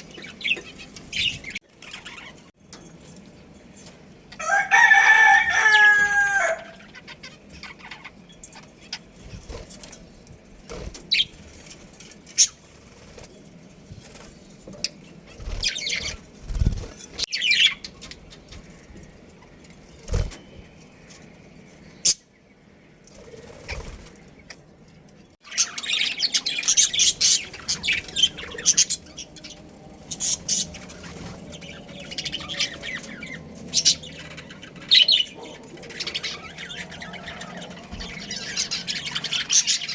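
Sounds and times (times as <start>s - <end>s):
small birds chirping and chattering: 0.0s - 39.9s
rooster crowing: 4.4s - 6.8s.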